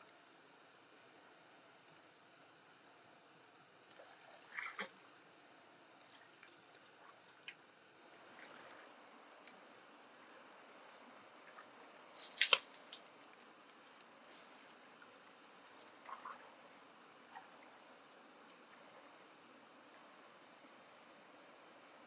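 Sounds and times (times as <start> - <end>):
wet clicks and squelches: 12.1 - 13.5.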